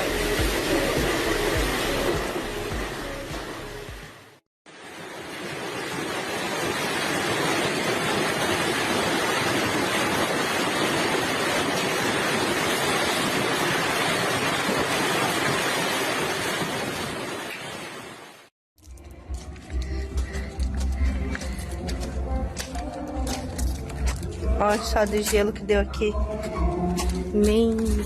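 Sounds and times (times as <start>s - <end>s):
hail and heavy rain: 4.8s - 18.3s.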